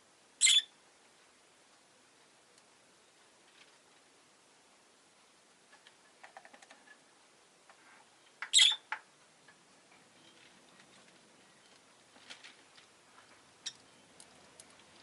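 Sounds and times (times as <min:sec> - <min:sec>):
bird chirping sharply: 0:00.4 - 0:00.7, 0:08.5 - 0:08.9.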